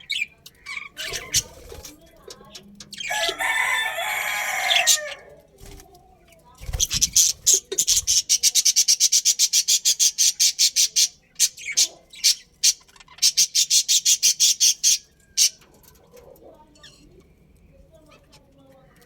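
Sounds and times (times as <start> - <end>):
small bird chirping harshly: 6.6 - 15.6.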